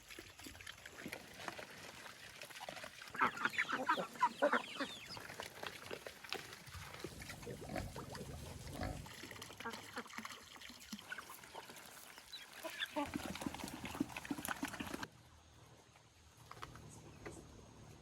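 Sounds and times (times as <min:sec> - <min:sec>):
poultry clucking: 0:03.2 - 0:05.2.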